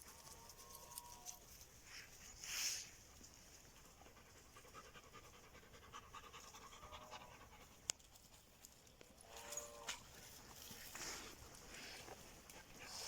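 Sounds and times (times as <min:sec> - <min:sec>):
dog panting: 0:03.7 - 0:08.5, 0:11.0 - 0:13.0.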